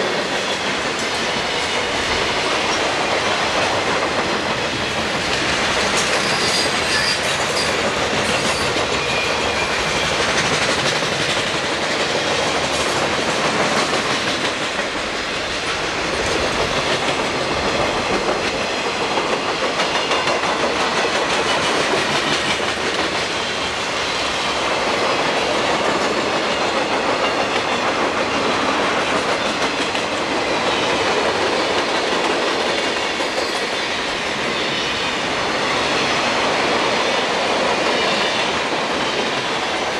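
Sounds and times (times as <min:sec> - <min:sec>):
steel wheels rolling on rail: 0:00.0 - 0:39.9.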